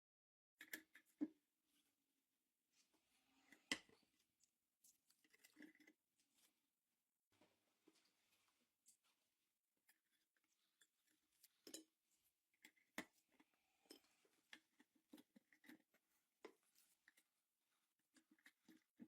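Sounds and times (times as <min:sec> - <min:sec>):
faint small clicks and taps: 0:09.8 - 0:17.3.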